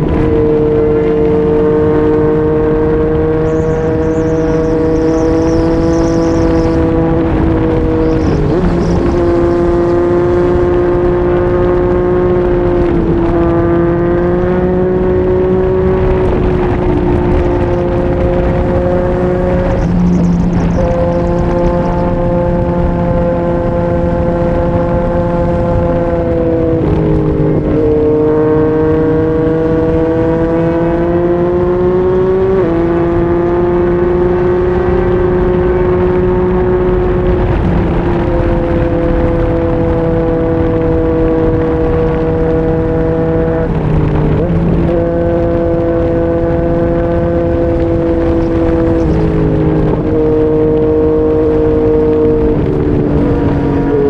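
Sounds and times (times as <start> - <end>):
motorcycle engine running: 0.0 - 54.0
wind rush: 0.0 - 54.0.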